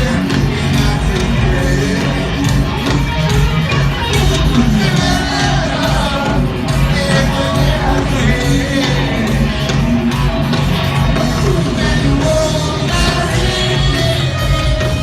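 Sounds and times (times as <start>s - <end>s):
bass guitar: 0.0s - 15.0s
distorted electric guitar: 0.0s - 15.0s
drums beating: 0.0s - 15.0s
person singing: 11.3s - 14.4s.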